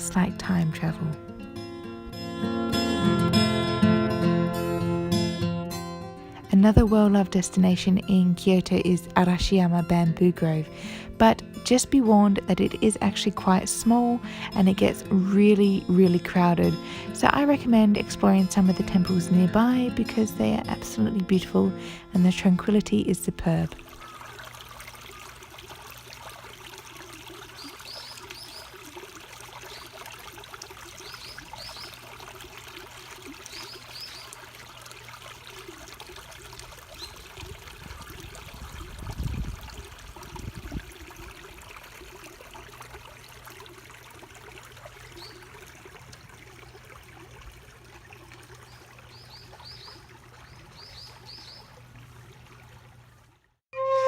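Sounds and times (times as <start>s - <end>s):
water trickling: 0.0s - 54.0s.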